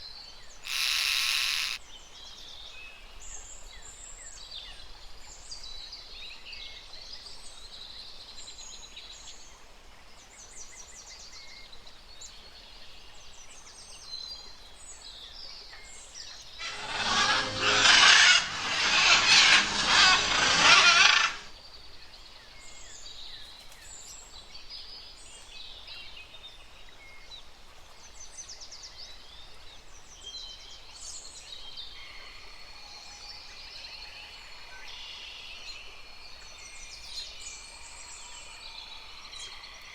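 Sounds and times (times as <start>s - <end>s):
birds chirping and trilling: 0.7s - 1.8s, 16.6s - 21.5s
harsh rasping burst: 0.7s - 1.8s, 16.6s - 21.5s.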